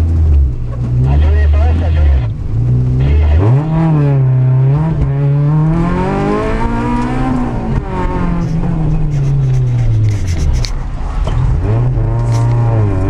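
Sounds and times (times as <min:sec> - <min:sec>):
car engine revving hard: 0:00.0 - 0:10.1.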